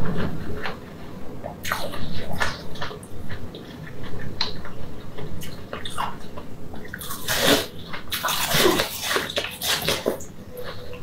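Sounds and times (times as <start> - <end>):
crunchy food being chewed: 0.0 - 11.0.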